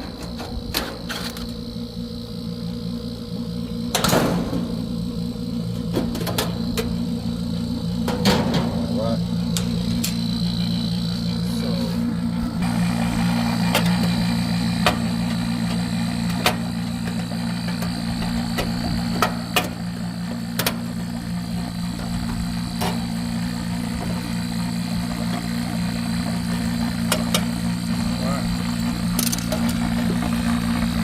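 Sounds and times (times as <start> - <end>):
vacuum pump motor drone: 0.0 - 31.0
sharp clicks of handled tools: 29.2 - 29.8.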